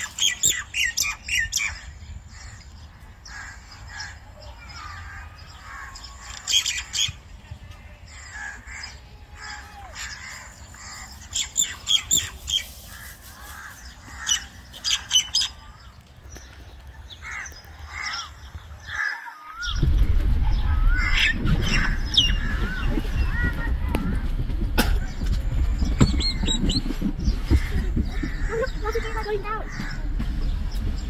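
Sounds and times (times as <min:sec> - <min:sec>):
birds squawking and chirping: 0:00.0 - 0:31.0
loud low rumble: 0:19.6 - 0:31.0.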